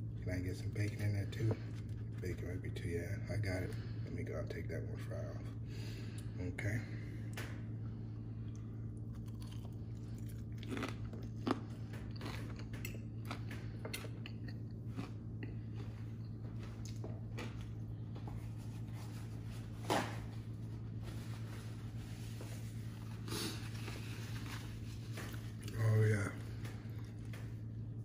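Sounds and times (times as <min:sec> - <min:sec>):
low hum: 0:00.0 - 0:28.0
chewing crunchy fries: 0:07.4 - 0:18.2, 0:22.7 - 0:28.0.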